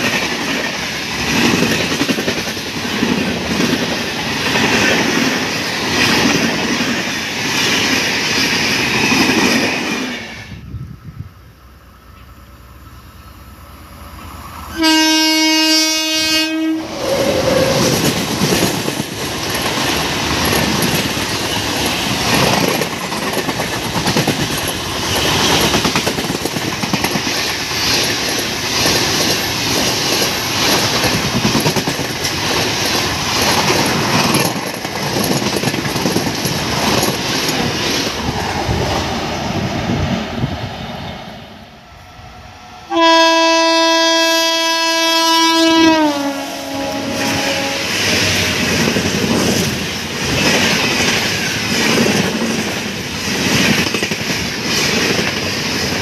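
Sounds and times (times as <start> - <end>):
train wheel and rail rush: 0.0 - 56.0
locomotive horn: 14.7 - 18.0, 42.9 - 48.5.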